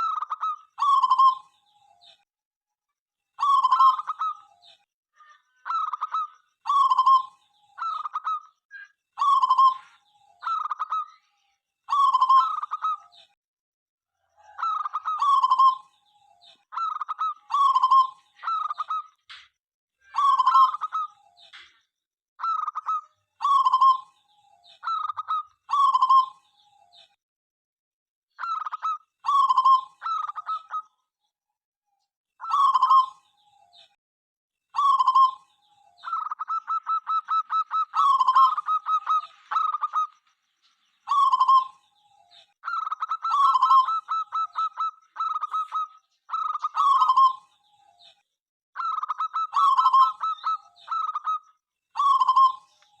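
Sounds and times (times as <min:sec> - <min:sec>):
dove cooing: 0:14.3 - 0:15.8, 0:32.4 - 0:33.2, 0:34.8 - 0:35.4, 0:36.0 - 0:40.2, 0:41.1 - 0:41.8, 0:42.6 - 0:47.4, 0:48.8 - 0:51.4, 0:52.0 - 0:52.7.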